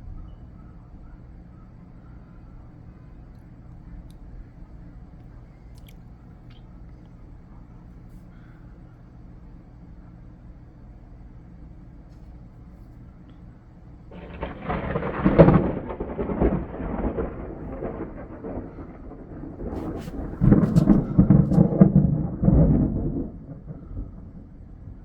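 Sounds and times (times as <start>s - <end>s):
thunder rumbling: 14.0s - 25.0s.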